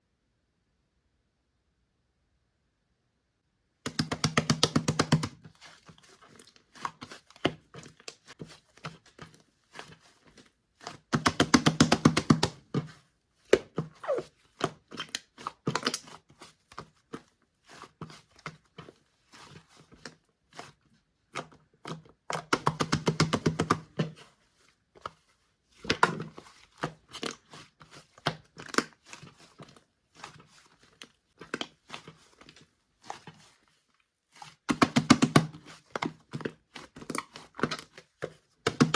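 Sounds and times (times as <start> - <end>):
hands squishing slime: 3.9 - 12.9, 25.8 - 38.9.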